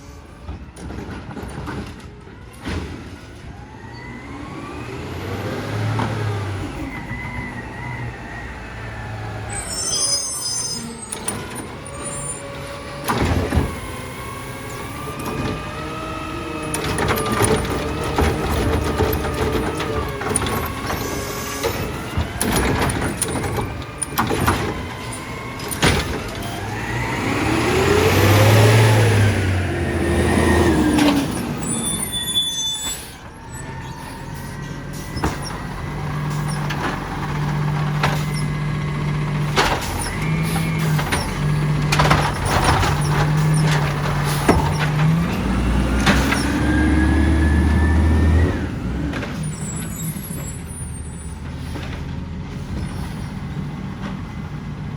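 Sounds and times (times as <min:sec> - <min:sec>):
garbage truck diesel engine revving: 0:00.0 - 0:54.9.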